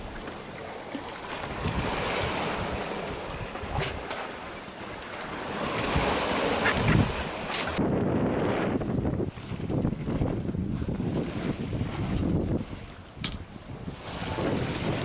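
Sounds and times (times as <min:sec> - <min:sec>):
wind buffeting microphone: 0:00.0 - 0:04.3, 0:05.3 - 0:15.0
water splashing along a hull: 0:00.0 - 0:15.0.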